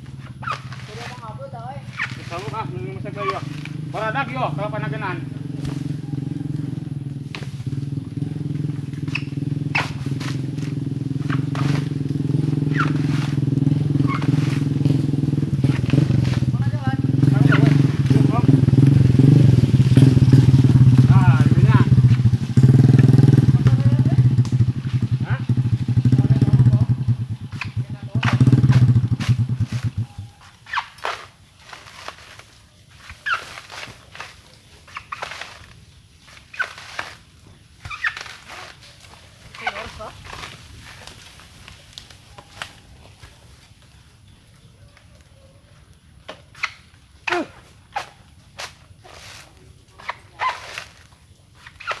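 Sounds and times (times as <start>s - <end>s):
small engine idling: 0.0s - 34.3s, 34.9s - 44.7s
short squeaks: 0.2s - 1.2s, 1.9s - 3.9s, 8.9s - 12.0s, 12.6s - 14.8s, 26.8s - 32.2s, 33.0s - 35.7s, 36.4s - 39.0s, 46.5s - 48.2s, 50.0s - 52.0s.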